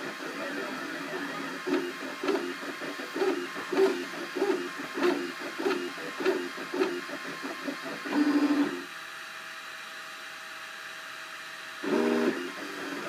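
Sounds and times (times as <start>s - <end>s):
printer stepper motors whirring: 0.0s - 8.9s, 11.7s - 13.0s
loud motor buzz: 0.0s - 9.0s, 11.7s - 13.0s.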